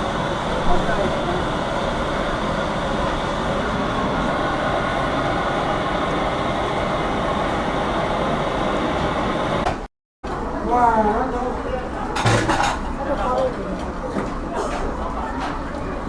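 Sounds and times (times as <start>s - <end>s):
steady rumbling roar: 0.0s - 9.7s.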